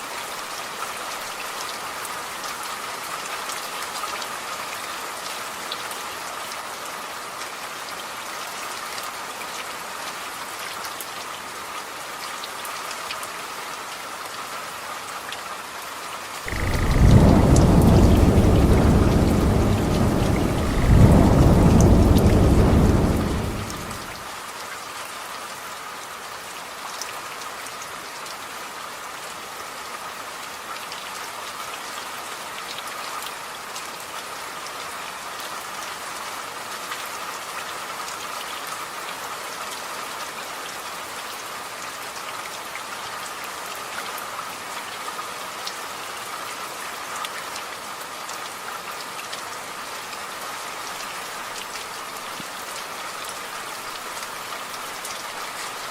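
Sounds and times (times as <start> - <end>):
steady rain falling: 0.0 - 55.9
thunder rumble: 16.5 - 24.2.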